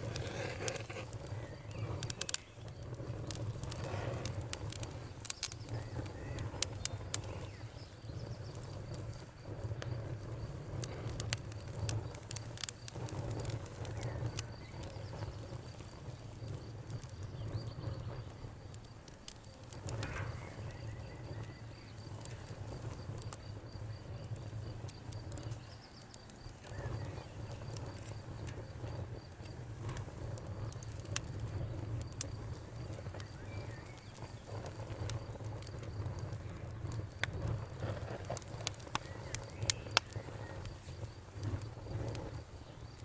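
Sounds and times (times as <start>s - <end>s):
campfire wood crackling: 0.0s - 43.0s
crickets chirping: 0.0s - 43.0s
low rumble of flames: 0.0s - 43.0s.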